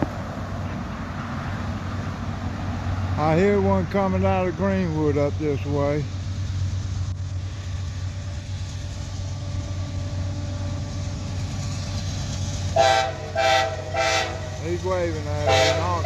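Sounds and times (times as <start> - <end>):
diesel locomotive rumbling: 0.0 - 16.0
train air horn blasts: 12.8 - 14.7, 15.4 - 16.0.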